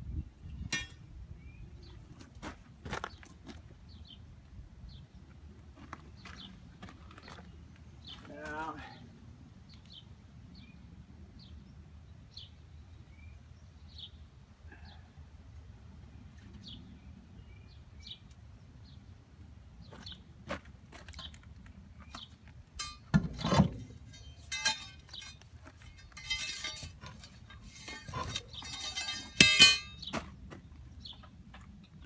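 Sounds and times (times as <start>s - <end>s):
metal tools clanking: 22.8s - 30.1s.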